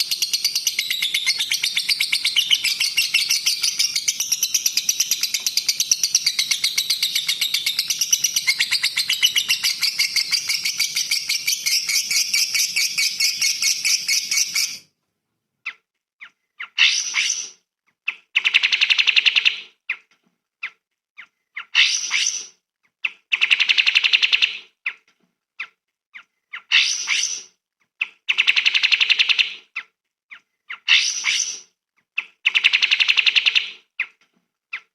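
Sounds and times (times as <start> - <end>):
songbird singing: 0.0 - 14.8.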